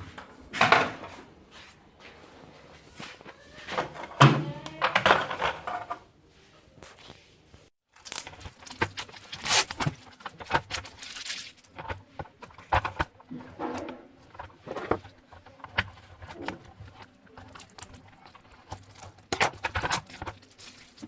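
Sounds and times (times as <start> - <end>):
crinkly rustling: 6.8 - 21.0.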